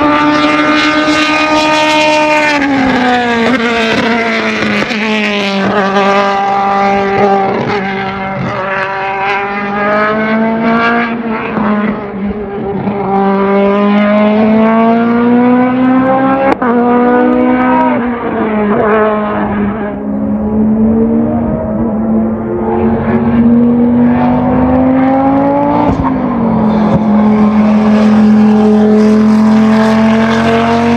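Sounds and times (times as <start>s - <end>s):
race car engine revving: 0.0s - 30.9s.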